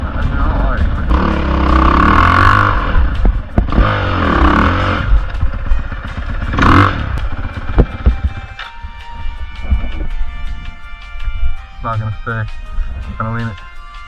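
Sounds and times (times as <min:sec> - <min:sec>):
dirt bike engine revving: 0:00.0 - 0:08.8
knocks and rattles: 0:05.1 - 0:08.5.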